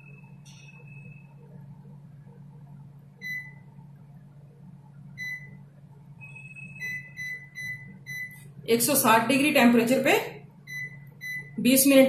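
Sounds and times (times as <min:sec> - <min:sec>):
steady low hum: 0:00.0 - 0:12.0
microwave keypad beeps: 0:03.2 - 0:03.6, 0:05.2 - 0:05.6, 0:06.2 - 0:08.4, 0:10.7 - 0:11.6.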